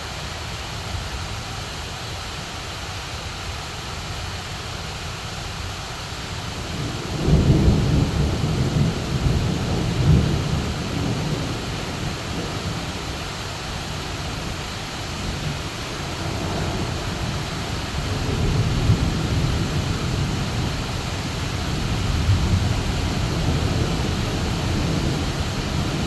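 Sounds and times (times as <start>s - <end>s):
heavy rain pouring: 0.0s - 26.0s
low rumble of thunder: 6.5s - 26.0s.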